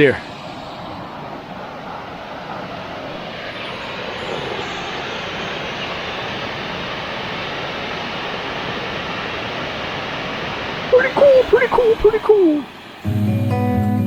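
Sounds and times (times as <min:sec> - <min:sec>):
waterfall rushing into pool: 0:04.5 - 0:13.1.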